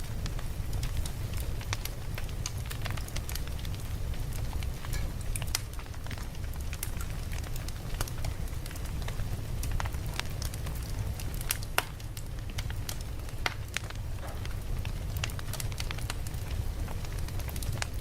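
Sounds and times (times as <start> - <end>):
campfire crackling and popping: 0.0 - 18.0
low fire rumble: 0.0 - 18.0.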